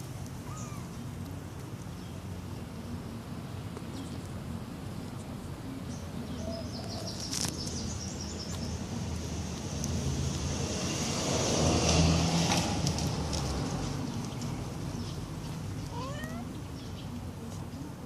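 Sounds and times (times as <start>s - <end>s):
vehicle passing: 7.5s - 15.9s.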